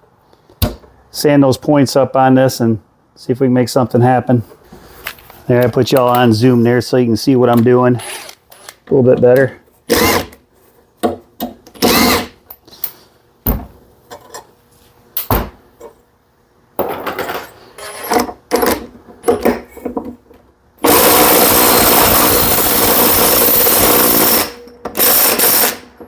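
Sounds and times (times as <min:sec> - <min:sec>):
impact wrench running: 0:09.9 - 0:10.4, 0:11.8 - 0:12.4, 0:20.8 - 0:25.9.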